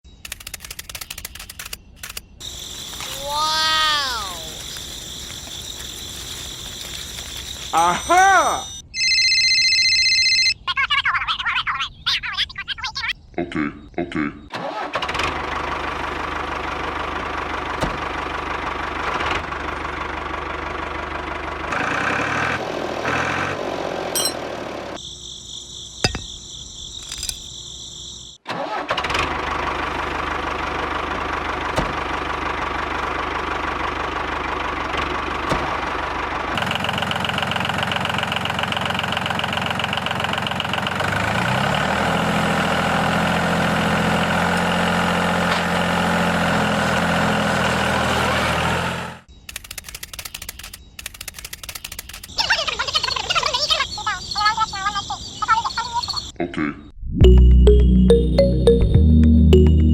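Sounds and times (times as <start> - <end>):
tractor motor running: 14.6 - 25.0, 28.6 - 49.2.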